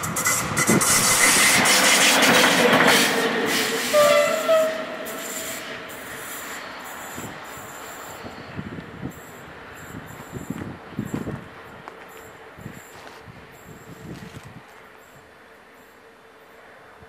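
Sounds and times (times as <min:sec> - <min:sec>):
train wheels rumbling on rails: 0:00.0 - 0:17.0
train horn notes: 0:03.6 - 0:05.6.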